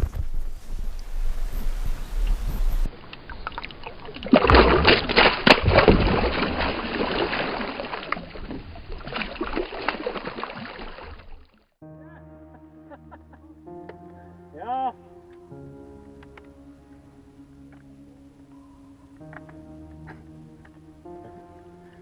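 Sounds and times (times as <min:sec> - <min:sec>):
water splashing and sloshing: 0:00.0 - 0:11.8.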